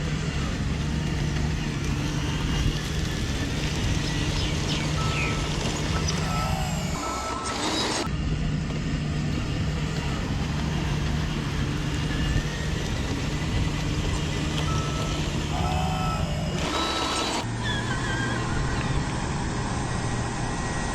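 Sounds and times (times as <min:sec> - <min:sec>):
model truck motor hum: 0:00.0 - 0:20.9.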